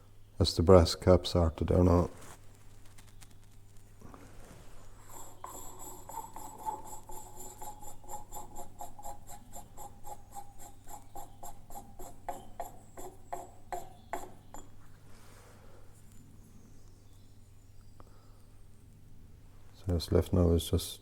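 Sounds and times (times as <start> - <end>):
hand tool scraping metal: 5.0 - 14.8.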